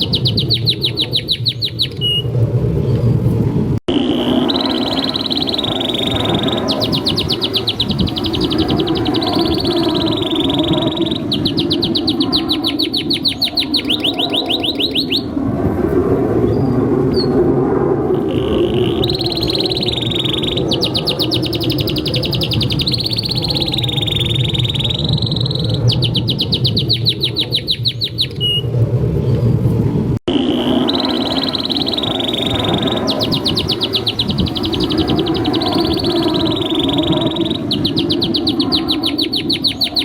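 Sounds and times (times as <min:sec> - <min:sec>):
canary singing: 0:00.0 - 0:02.3, 0:03.9 - 0:15.4, 0:18.2 - 0:28.7, 0:30.3 - 0:40.0.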